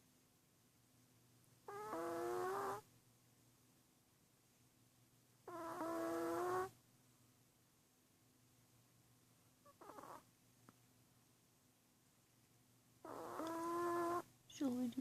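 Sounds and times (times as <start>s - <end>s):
small dog snoring: 1.6s - 2.9s, 5.4s - 6.8s, 9.6s - 10.3s, 13.0s - 14.3s.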